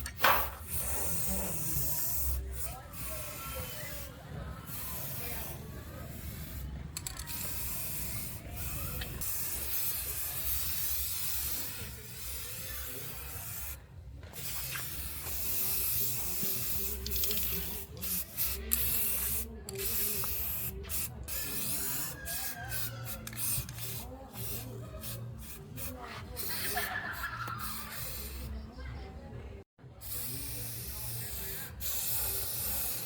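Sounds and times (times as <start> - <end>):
hiss of paint spraying: 0.2 - 13.8, 14.4 - 28.5, 30.0 - 33.0.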